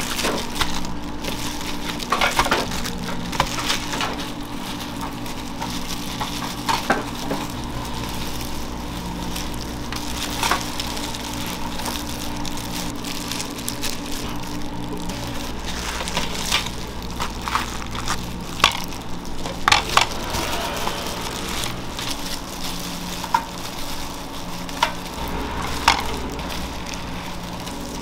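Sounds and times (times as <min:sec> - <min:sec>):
food sizzling: 0:00.0 - 0:28.0
low machine hum: 0:00.0 - 0:28.0.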